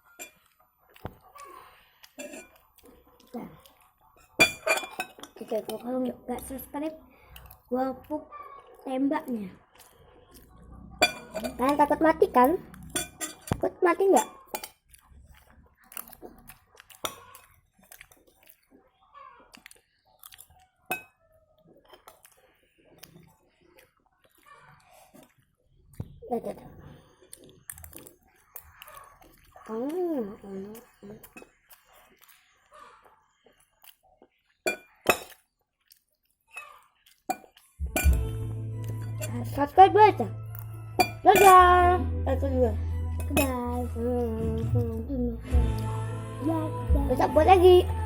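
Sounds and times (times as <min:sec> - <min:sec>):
cutlery clinking against a dish: 0:00.0 - 0:00.5, 0:02.2 - 0:02.6, 0:04.2 - 0:05.4, 0:11.0 - 0:11.7, 0:12.9 - 0:13.6, 0:14.2 - 0:14.8, 0:20.9 - 0:21.2, 0:34.7 - 0:35.4, 0:37.3 - 0:38.3, 0:41.0 - 0:41.6
chewing with mouth clicks: 0:00.0 - 0:06.6, 0:07.2 - 0:11.6, 0:14.3 - 0:26.2, 0:27.0 - 0:39.6
music: 0:37.8 - 0:48.0.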